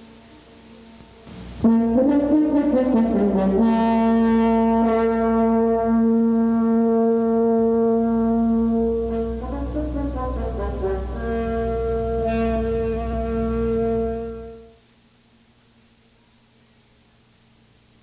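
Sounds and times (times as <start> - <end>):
brass music: 1.3 - 14.8.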